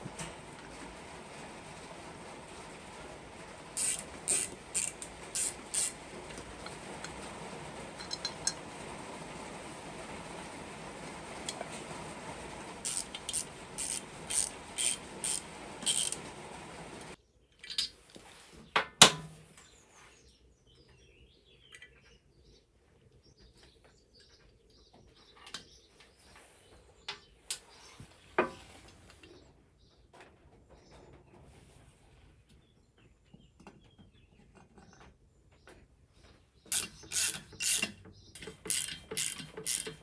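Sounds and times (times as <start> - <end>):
regular metallic clicks: 3.8 - 6.0, 12.9 - 16.2, 36.7 - 40.0
steady hiss: 3.8 - 6.0
scattered clicks and knocks: 3.8 - 7.3, 12.9 - 16.4, 36.7 - 40.0.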